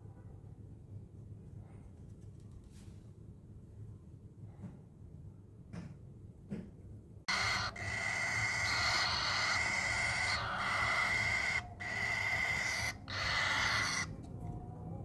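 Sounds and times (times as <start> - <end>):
bird of prey chick screeching: 7.3 - 14.2.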